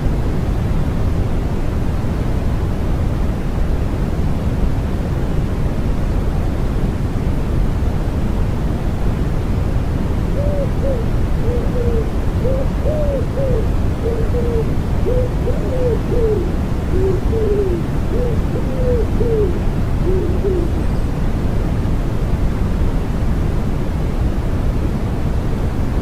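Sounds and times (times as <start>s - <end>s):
deep white-noise hiss: 0.0s - 26.0s
wood pigeon cooing: 10.3s - 21.0s.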